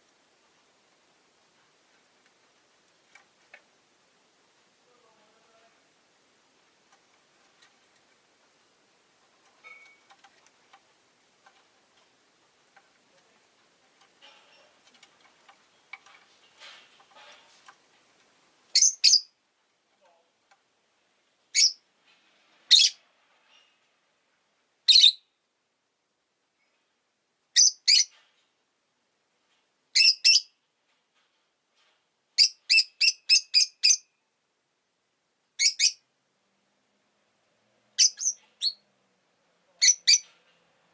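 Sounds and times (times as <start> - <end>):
faint ticks and rustles: 0.0 - 18.8, 30.6 - 32.4
bird chirping: 18.7 - 19.4, 21.5 - 21.8, 22.7 - 23.0, 24.9 - 25.4, 27.6 - 28.2, 30.0 - 30.6, 32.4 - 34.2, 35.6 - 36.1, 38.0 - 38.9, 39.7 - 40.4.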